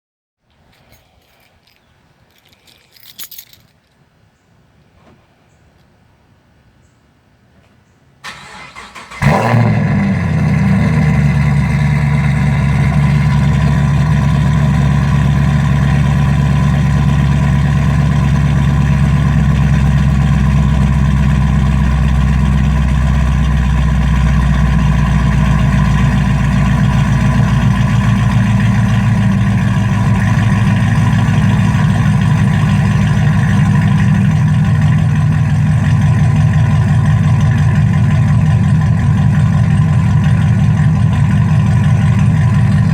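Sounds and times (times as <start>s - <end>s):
engine cranking: 8.3s - 9.5s
loud engine idling: 9.2s - 42.9s.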